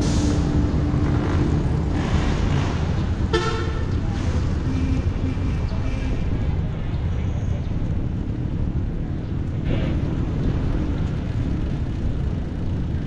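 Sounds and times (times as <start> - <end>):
motor traffic passing: 0.0 - 13.0
wind and road noise: 0.0 - 13.0
vehicle horn toot: 3.3 - 4.0.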